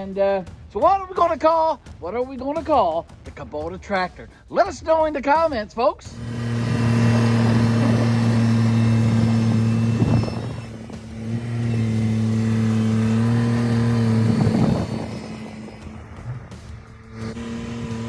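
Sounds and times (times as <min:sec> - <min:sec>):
tractor diesel engine running: 0:06.1 - 0:18.0.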